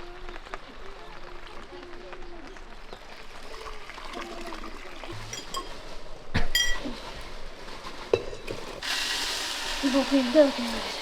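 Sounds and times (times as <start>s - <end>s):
kitchenware clinking: 5.1s - 7.4s, 8.1s - 8.8s.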